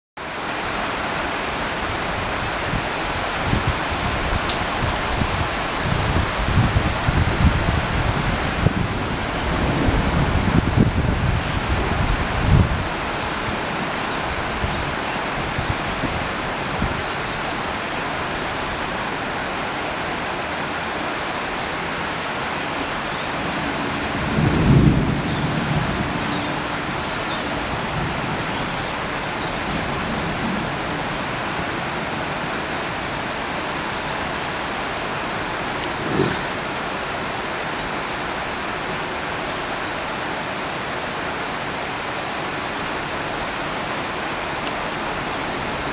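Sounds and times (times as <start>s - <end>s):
steady rain: 0.2s - 45.9s
thunder rumbling: 3.4s - 17.0s, 23.4s - 32.3s, 35.6s - 36.9s.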